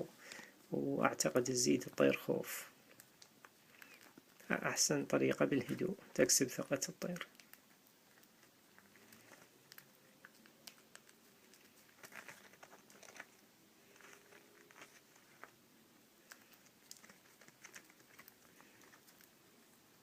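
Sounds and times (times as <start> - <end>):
faint light clicks and scratches: 2.8 - 6.0, 6.8 - 15.6, 16.2 - 19.8.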